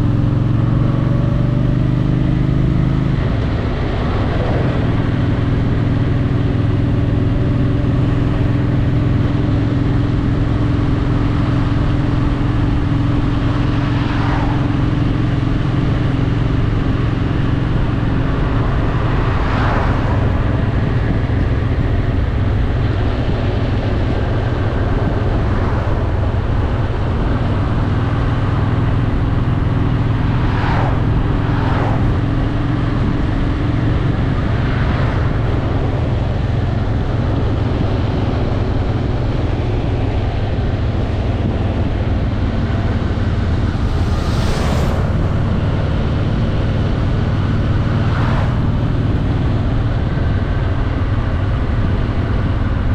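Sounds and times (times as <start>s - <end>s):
motorcycle engine running: 0.0s - 52.9s
short whooshes of noise: 30.2s - 32.2s, 43.2s - 46.3s.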